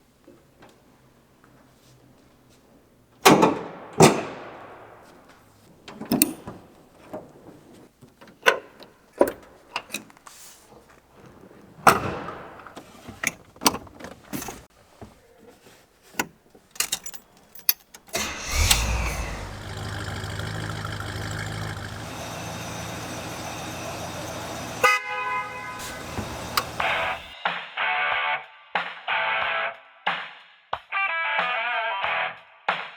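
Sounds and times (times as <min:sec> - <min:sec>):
car engine starting and idling: 0:18.1 - 0:27.3
car horn honking: 0:18.2 - 0:27.3
sharp clunks and clicks: 0:25.7 - 0:27.3.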